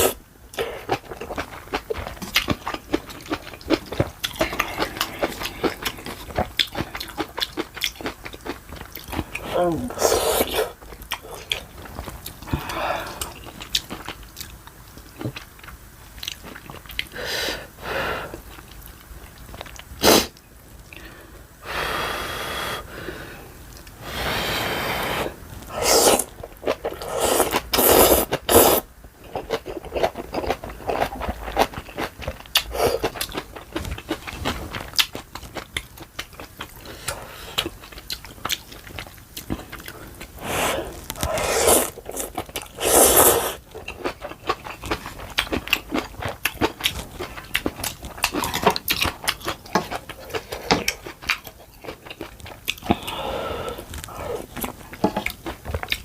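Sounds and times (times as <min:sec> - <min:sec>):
chewing: 0:00.0 - 0:09.5, 0:10.3 - 0:17.2, 0:25.9 - 0:56.0
noodles slurped: 0:24.2 - 0:28.8, 0:40.3 - 0:43.7.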